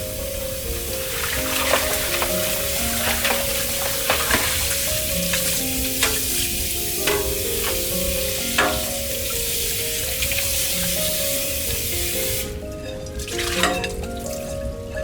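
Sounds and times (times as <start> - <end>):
soft background music: 0.0 - 15.0
food sizzling in a pan: 0.1 - 14.1
utensil clicking against pan: 1.7 - 9.2.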